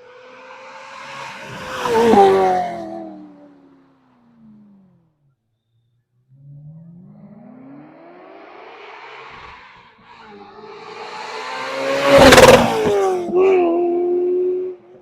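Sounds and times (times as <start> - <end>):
car engine accelerating: 0.0 - 15.0
sports car engine passing: 0.0 - 15.0.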